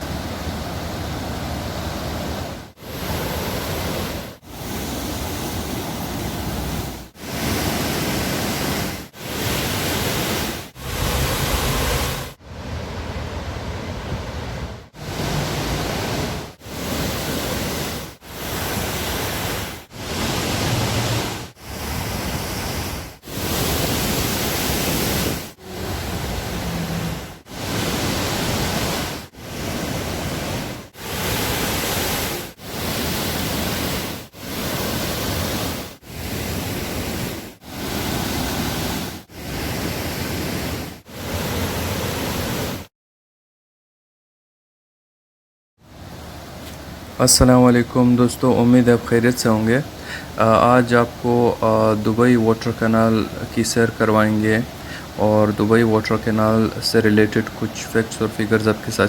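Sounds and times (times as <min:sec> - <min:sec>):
waterfall rushing: 0:00.0 - 0:42.8, 0:45.9 - 0:59.0.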